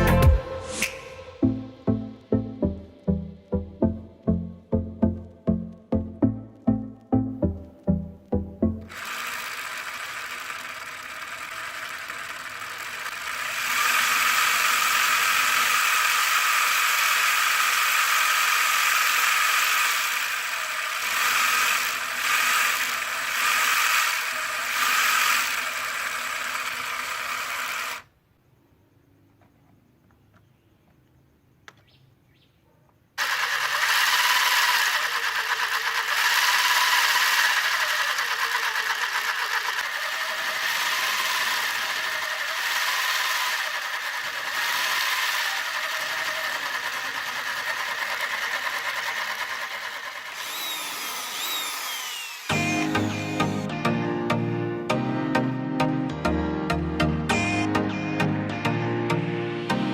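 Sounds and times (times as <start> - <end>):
small motor whirring with rattle: 8.9 - 28.1, 33.2 - 53.7
single click: 31.6 - 31.9.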